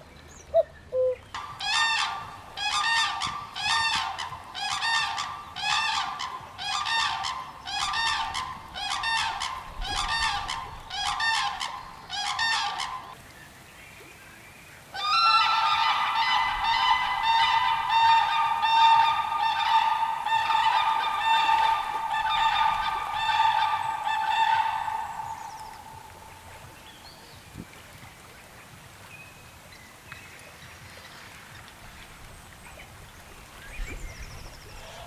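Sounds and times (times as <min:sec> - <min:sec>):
bird calling: 0:00.4 - 0:13.2, 0:15.0 - 0:27.3.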